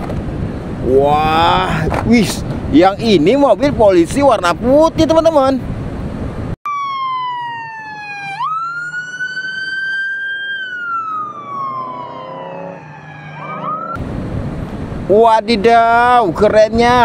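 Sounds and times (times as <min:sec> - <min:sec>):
police siren wailing: 0:06.7 - 0:14.0.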